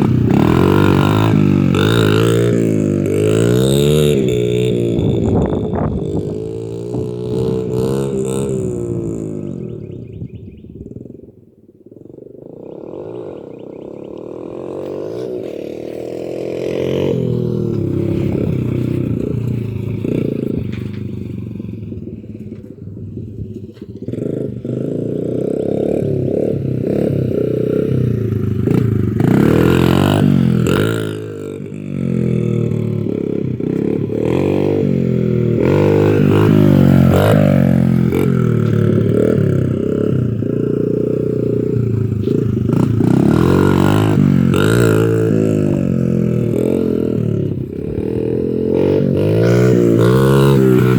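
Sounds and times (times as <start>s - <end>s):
dirt bike engine revving: 0.0s - 10.3s, 12.0s - 50.9s.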